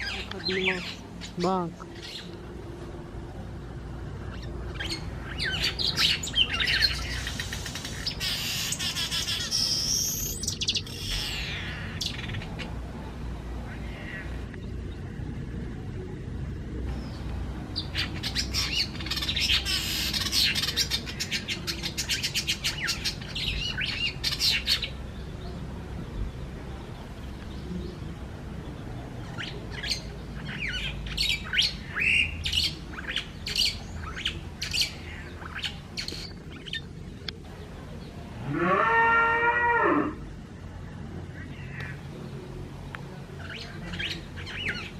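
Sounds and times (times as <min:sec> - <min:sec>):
birds chirping rapidly: 0:00.0 - 0:39.1, 0:40.3 - 0:44.9
drawn-out rising bird call: 0:04.1 - 0:15.1.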